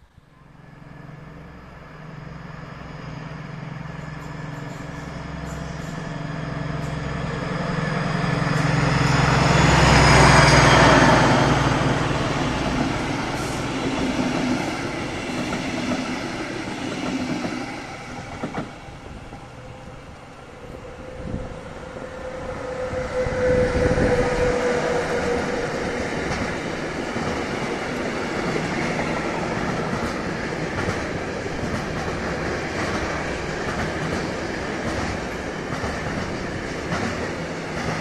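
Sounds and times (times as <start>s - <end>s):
diesel locomotive engine drone: 0.0s - 38.0s
electric locomotive whine: 0.0s - 38.0s.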